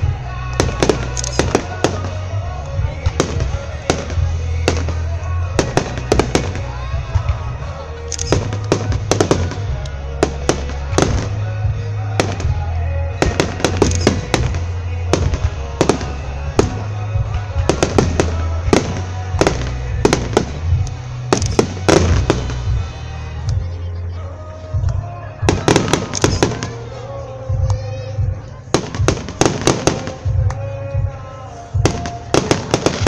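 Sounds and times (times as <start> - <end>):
background music with low bass: 0.0 - 33.0
firework shells bursting: 13.2 - 16.8, 17.8 - 22.7, 25.6 - 26.7.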